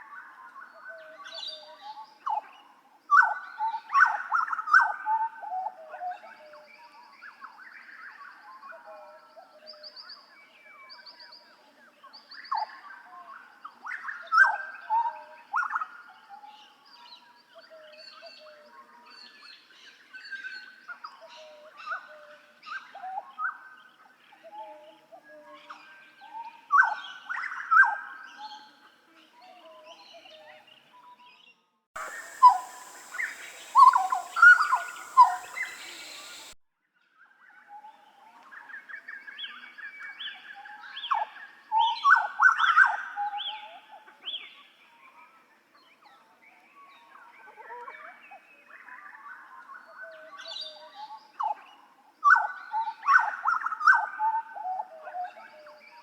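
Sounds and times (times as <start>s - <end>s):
bird whistling loud notes: 32.0s - 36.6s
faint bird chirps: 32.0s - 36.6s
recording hiss: 32.0s - 36.6s.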